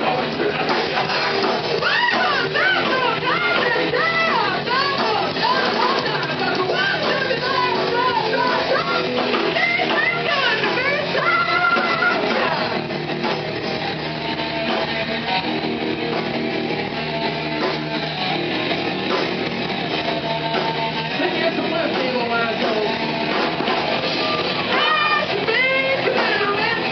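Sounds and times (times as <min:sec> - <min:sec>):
person singing: 0:00.0 - 0:12.8, 0:20.0 - 0:23.4, 0:24.1 - 0:26.9
rock band playing live: 0:00.0 - 0:26.9.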